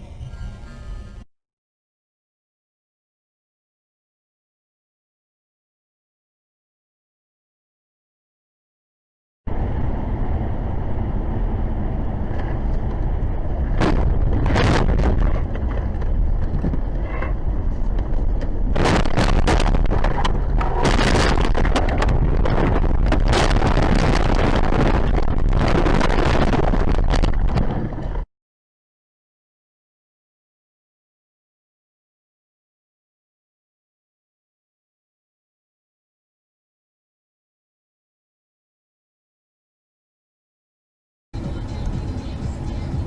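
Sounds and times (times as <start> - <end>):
road and wind rumble: 9.5 - 28.3, 41.4 - 43.0.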